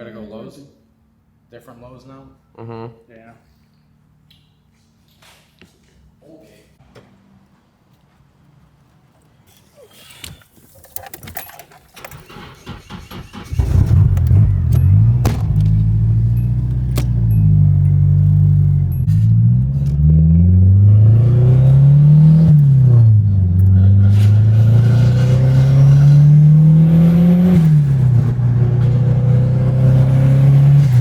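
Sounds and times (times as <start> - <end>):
turbocharged engine accelerating: 12.1 - 31.0.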